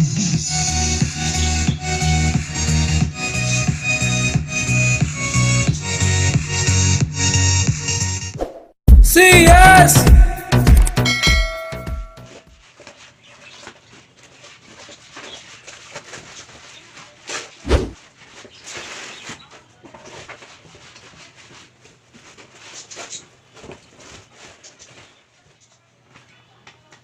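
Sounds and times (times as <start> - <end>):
packaging rustling: 12.6 - 25.3
thump: 17.7 - 18.0.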